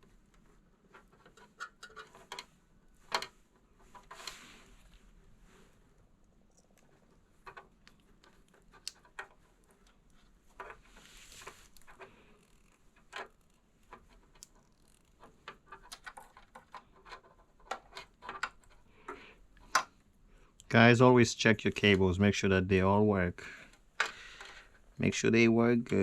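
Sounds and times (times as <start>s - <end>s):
small clicks and taps on wires: 6.5s - 10.7s.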